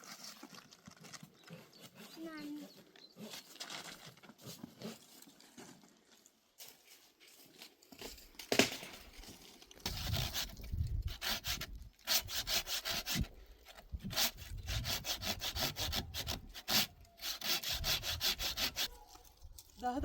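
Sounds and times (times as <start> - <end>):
hand saw cutting wood: 1.5 - 3.5, 9.9 - 19.0.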